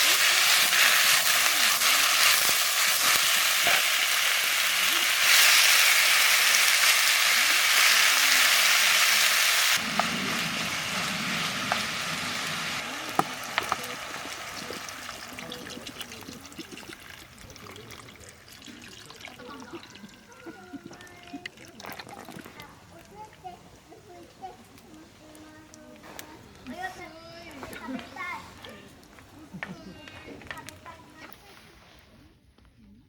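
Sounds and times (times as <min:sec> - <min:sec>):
food sizzling in a frying pan: 0:00.0 - 0:17.4.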